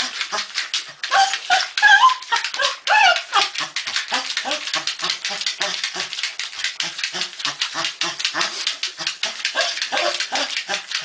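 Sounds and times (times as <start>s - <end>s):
dog whining and yipping: 1.0s - 3.6s, 9.6s - 10.6s.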